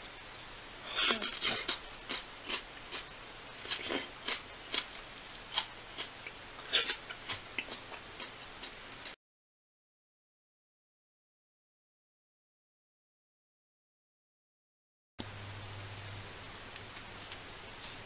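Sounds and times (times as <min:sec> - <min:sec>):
crisp crunches of chewing cabbage: 0:01.1 - 0:08.8.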